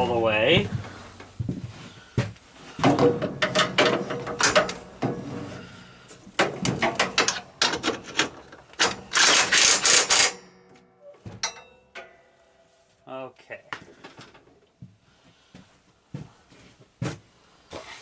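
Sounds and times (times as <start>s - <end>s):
rapid mechanical clicking and rattling: 7.7s - 10.3s.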